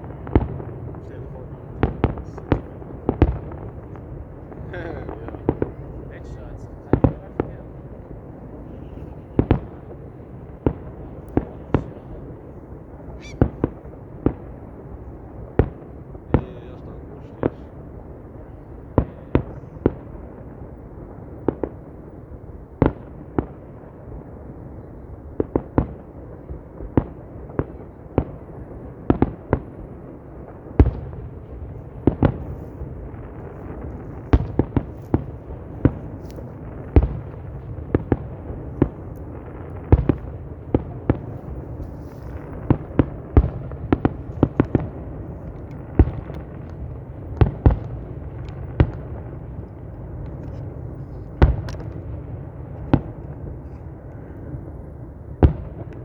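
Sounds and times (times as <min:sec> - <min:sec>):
firework shells bursting: 0:00.3 - 0:17.7, 0:32.0 - 0:56.0.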